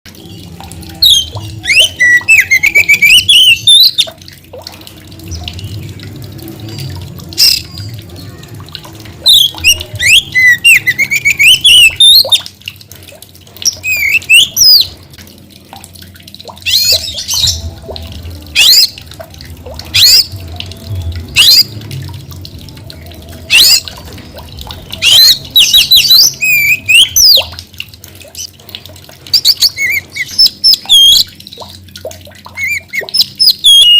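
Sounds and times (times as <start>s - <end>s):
low steady hum: 0.1s - 25.7s
magpie-robin singing: 1.0s - 4.1s, 9.3s - 12.4s, 25.0s - 27.5s, 32.6s - 33.9s.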